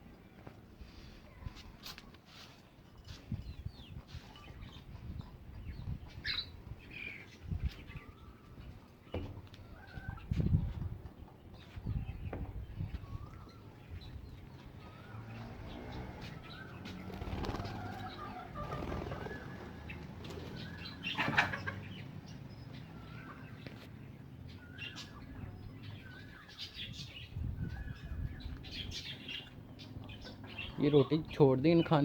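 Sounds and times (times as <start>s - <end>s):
birds chirping and cooing: 2.7s - 32.0s
wings flapping: 16.8s - 20.7s.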